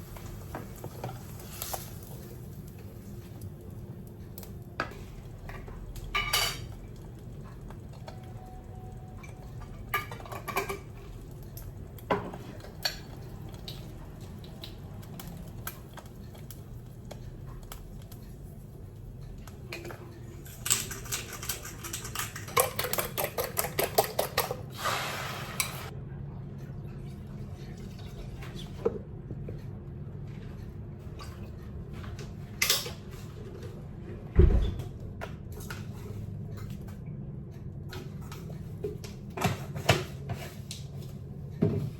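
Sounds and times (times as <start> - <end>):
dishes and utensils clinking: 4.8 - 6.8, 9.2 - 11.2.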